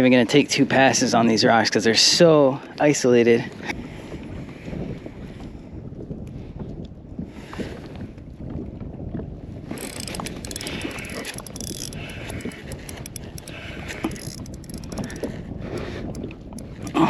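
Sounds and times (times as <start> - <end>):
wind buffeting microphone: 3.8 - 17.0
light clicks from boat gear: 9.8 - 17.0.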